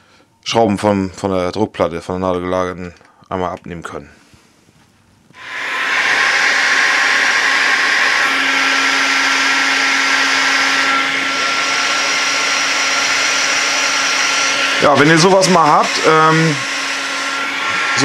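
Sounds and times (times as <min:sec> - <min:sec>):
hot-air gun blowing: 0:05.4 - 0:18.0.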